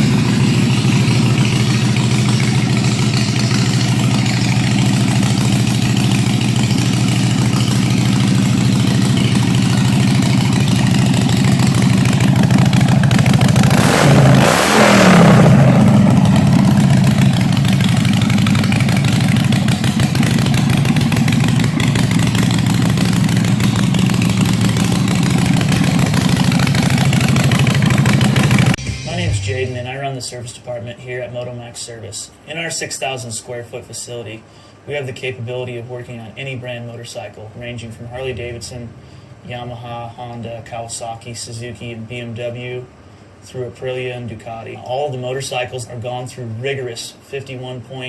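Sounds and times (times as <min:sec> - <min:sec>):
motorcycle engine idling and revving: 0:00.0 - 0:28.8.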